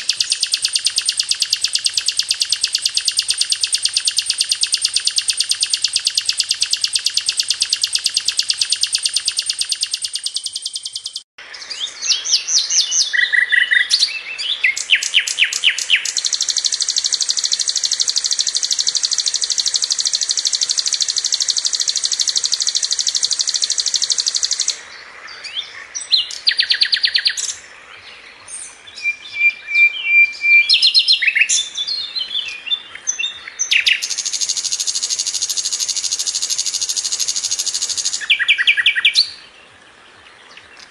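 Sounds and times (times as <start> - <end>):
flycatcher song with high trills: 0.0 - 24.8, 32.4 - 39.5.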